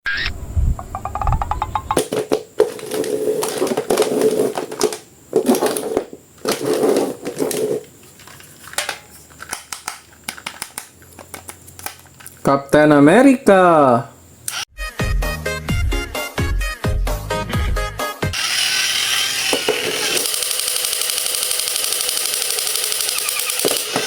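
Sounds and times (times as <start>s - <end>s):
plastic and cardboard rustling: 2.0s - 12.5s.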